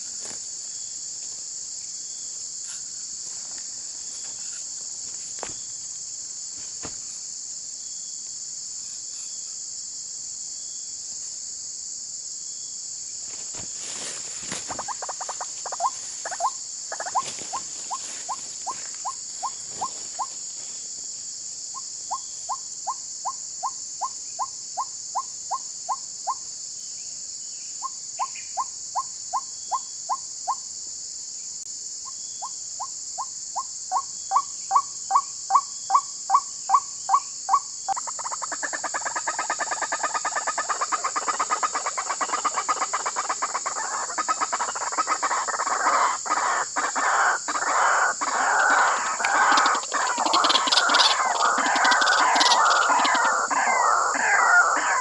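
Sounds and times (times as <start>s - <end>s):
crickets chirping: 0.0s - 55.0s
waterhen calling: 14.6s - 20.0s, 38.2s - 55.0s.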